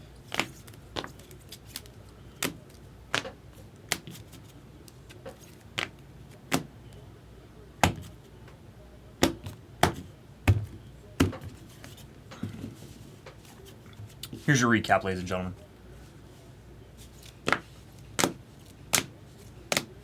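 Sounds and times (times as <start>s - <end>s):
cards tapping on a tabletop: 2.4s - 4.3s, 7.8s - 8.2s, 17.4s - 19.1s, 19.7s - 19.9s.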